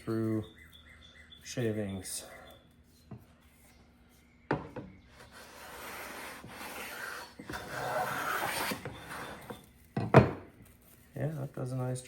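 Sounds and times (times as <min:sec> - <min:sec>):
hand plane shaving wood: 0:05.2 - 0:09.6.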